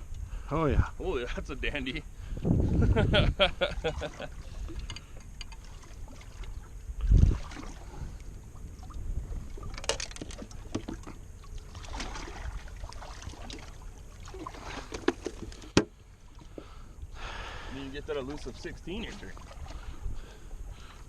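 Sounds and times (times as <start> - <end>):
small clicks and knocks: 4.7 - 5.6, 9.7 - 11.2.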